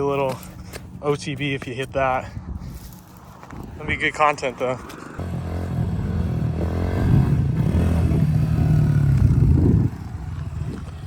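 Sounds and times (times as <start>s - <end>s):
small motorcycle engine revving: 5.2s - 11.0s.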